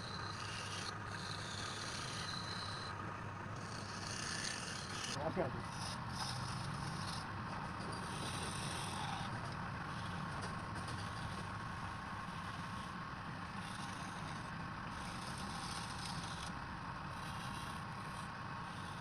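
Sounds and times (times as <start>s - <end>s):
turning tool cutting wood: 0.0s - 2.9s, 3.6s - 16.5s
wood lathe running: 0.0s - 2.9s, 3.6s - 7.2s, 8.1s - 9.3s, 13.5s - 16.5s.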